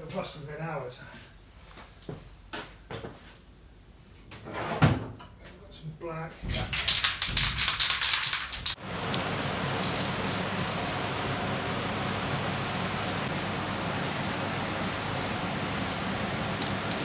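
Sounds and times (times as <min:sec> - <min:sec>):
aerosol spray can hissing: 0:07.0 - 0:17.0.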